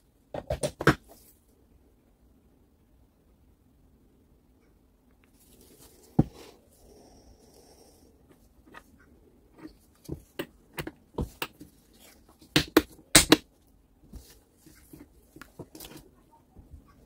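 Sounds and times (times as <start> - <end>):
tools clicking and knocking: 9.6 - 11.7.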